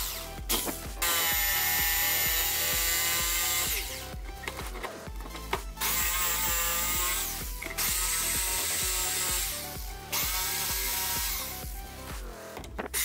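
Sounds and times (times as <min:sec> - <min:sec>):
electric jigsaw cutting wood: 0:00.0 - 0:04.0, 0:05.8 - 0:11.6
background music: 0:00.0 - 0:13.0.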